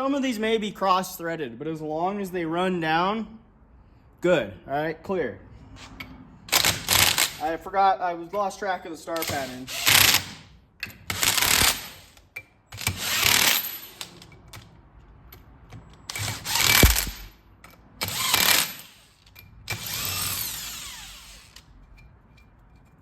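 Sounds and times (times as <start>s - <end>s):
impact wrench running bolts: 6.5s - 7.5s, 9.2s - 14.8s, 15.4s - 21.7s.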